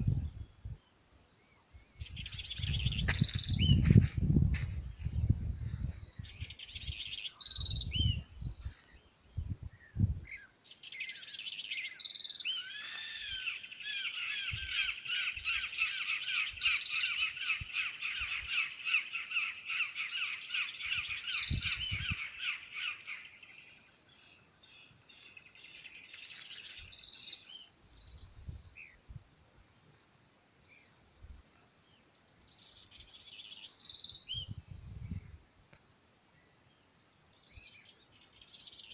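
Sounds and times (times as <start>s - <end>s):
birds calling harshly: 10.4s - 24.4s.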